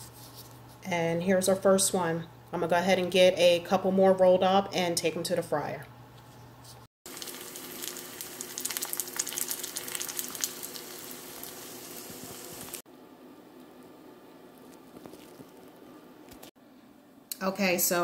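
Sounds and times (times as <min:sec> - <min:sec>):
food frying in hot oil: 0:07.0 - 0:12.8.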